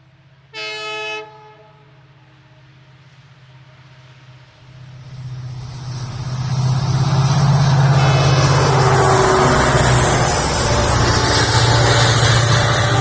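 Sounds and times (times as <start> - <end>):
train passing: 4.2 - 13.0.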